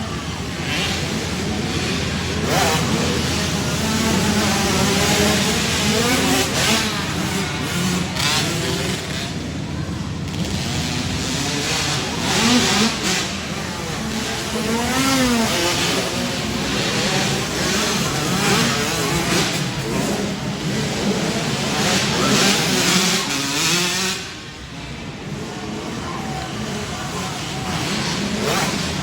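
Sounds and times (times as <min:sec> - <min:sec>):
dirt bike engines revving: 0:00.0 - 0:29.0.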